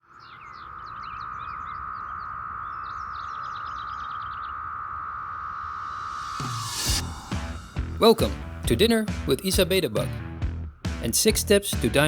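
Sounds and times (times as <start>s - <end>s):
birds chirping: 0.0s - 5.0s
cicadas droning: 0.0s - 7.2s.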